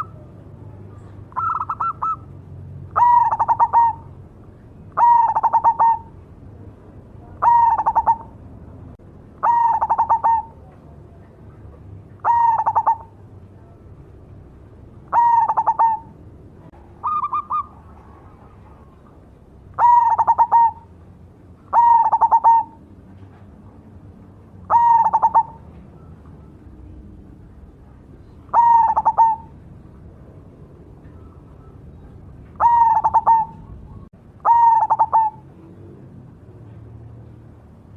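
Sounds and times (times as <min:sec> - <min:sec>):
dove cooing: 0:00.0 - 0:02.3, 0:02.9 - 0:04.2, 0:04.9 - 0:06.2, 0:07.2 - 0:08.4, 0:09.4 - 0:10.7, 0:12.2 - 0:13.7, 0:15.0 - 0:16.2, 0:17.0 - 0:19.1, 0:19.7 - 0:20.9, 0:21.7 - 0:22.9, 0:24.6 - 0:27.0, 0:28.2 - 0:29.7, 0:31.0 - 0:35.9.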